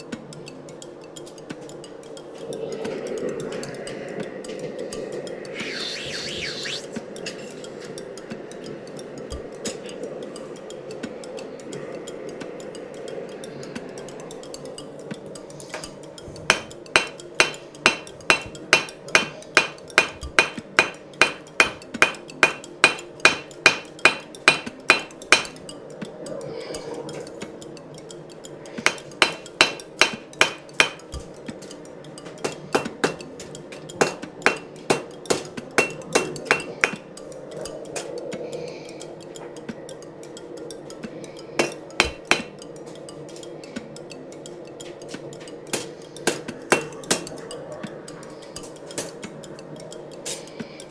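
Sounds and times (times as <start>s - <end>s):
steady rushing noise: 1.3s - 14.7s
hammer striking steel on anvil: 16.5s - 25.5s, 28.8s - 31.0s, 34.0s - 37.0s, 41.6s - 42.5s.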